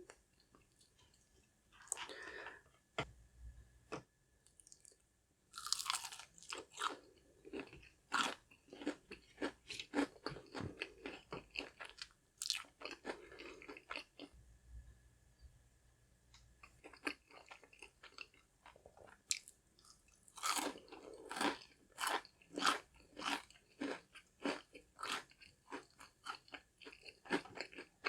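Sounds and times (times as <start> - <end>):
crunchy chewing: 5.6 - 14.3, 16.6 - 28.0.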